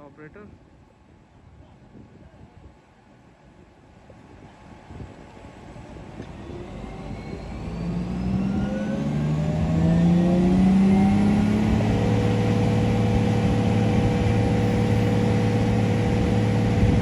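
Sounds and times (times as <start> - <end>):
vehicle engine humming: 8.0 - 17.0.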